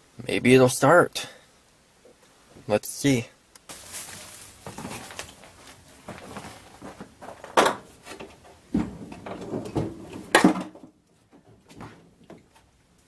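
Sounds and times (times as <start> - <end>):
car battery clunks and clatter: 7.3 - 7.9, 8.7 - 11.0.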